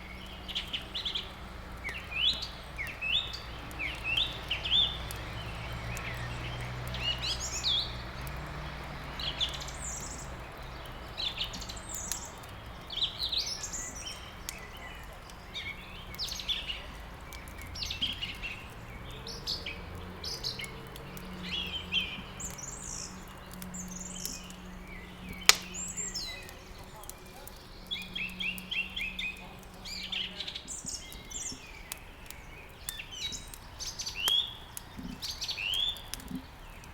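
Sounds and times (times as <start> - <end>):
songbirds chirping and trilling: 0.0 - 36.9
wood fire crackling: 0.0 - 36.9
sharp pop of fire: 25.4 - 25.9.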